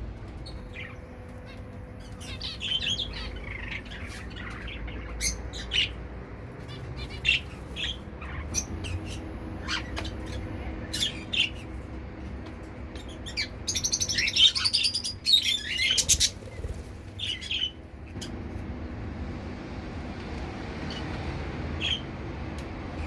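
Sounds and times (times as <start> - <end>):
low background hum: 0.0 - 23.0
finches chirping: 0.4 - 6.0, 6.6 - 11.7, 13.0 - 18.2.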